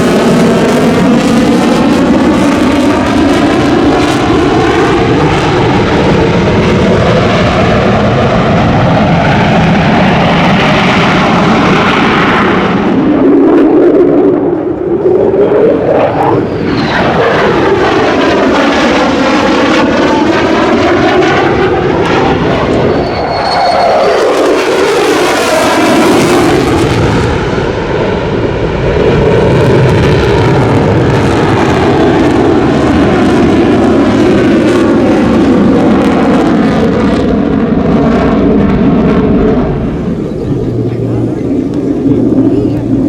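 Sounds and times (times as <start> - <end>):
jet engine passing: 0.0 - 43.0.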